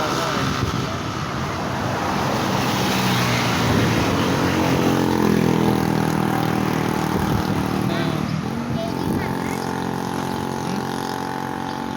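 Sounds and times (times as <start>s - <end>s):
truck diesel engine labouring: 3.4s - 11.9s.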